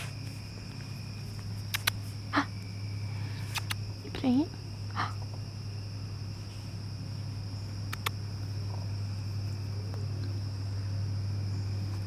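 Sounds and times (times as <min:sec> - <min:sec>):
electrical hum: 0:00.0 - 0:12.0
sharp clicks: 0:01.7 - 0:02.0, 0:03.5 - 0:03.8, 0:07.9 - 0:08.2.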